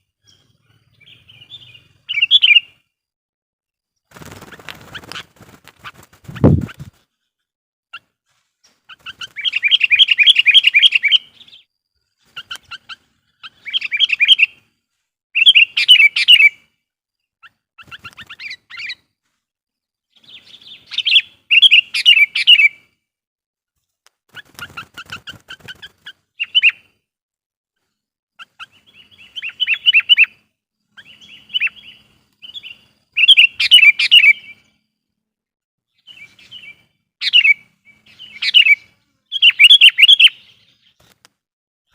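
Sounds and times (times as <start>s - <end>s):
bird singing chattering phrases: 28.4s - 34.6s.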